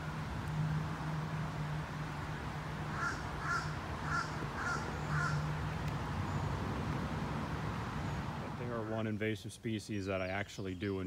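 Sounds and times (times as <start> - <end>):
bird calling: 2.9 - 5.5.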